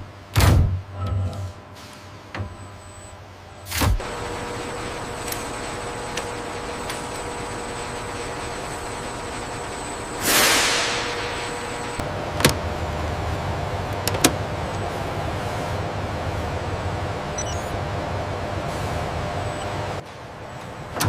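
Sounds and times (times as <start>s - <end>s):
low machine hum: 0.0s - 21.0s
factory machinery humming: 0.9s - 21.0s
burst of hiss: 10.2s - 11.2s.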